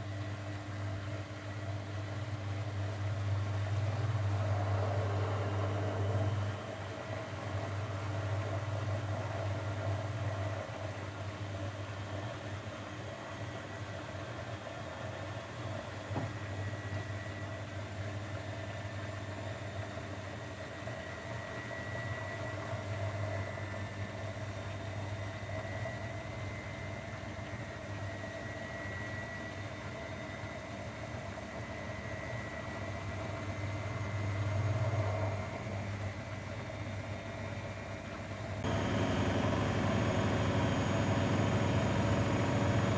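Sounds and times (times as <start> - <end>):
faint high whine: 38.6 - 42.9
washing machine motor hum: 38.6 - 42.9.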